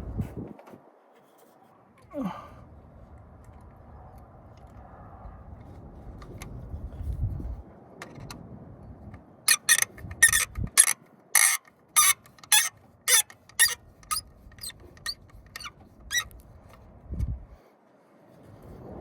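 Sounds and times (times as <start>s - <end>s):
short high-pitched squeaks: 9.5s - 16.4s.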